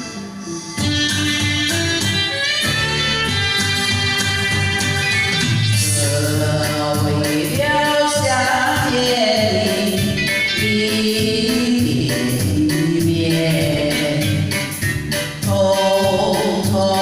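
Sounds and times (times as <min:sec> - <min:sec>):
person singing: 0:00.0 - 0:01.8, 0:05.7 - 0:17.0
guitar-led instrumental music: 0:00.0 - 0:17.0.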